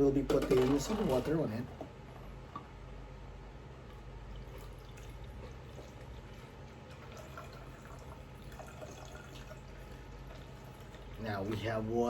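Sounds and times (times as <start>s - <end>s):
water pouring into a bottle: 4.2s - 11.6s.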